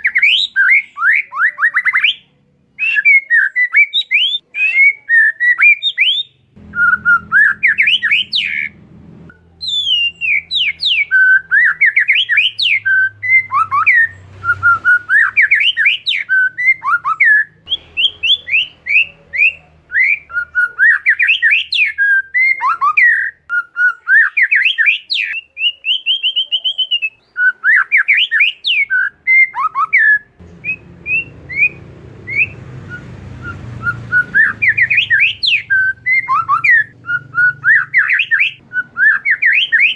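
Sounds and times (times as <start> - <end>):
bird singing whistled notes: 0.0 - 39.9
low hum: 6.6 - 11.8, 30.4 - 37.8.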